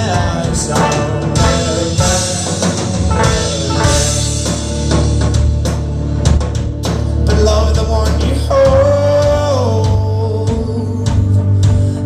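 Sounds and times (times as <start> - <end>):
person singing: 0.0 - 4.0, 7.2 - 12.0
live band playing: 0.0 - 12.0.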